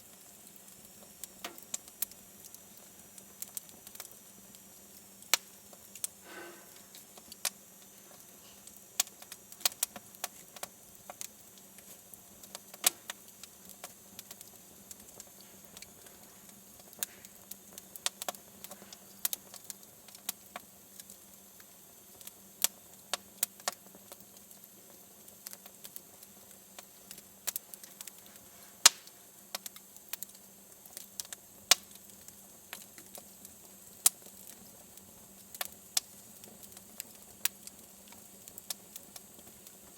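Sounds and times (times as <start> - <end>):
wood fire crackling and popping: 0.0 - 39.9
brief hiss: 6.2 - 7.1.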